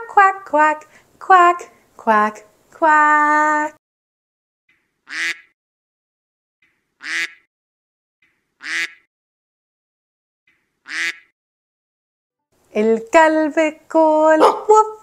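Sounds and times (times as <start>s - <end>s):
duck quacking: 5.0s - 5.5s, 7.0s - 7.5s, 8.6s - 9.1s, 10.8s - 11.3s.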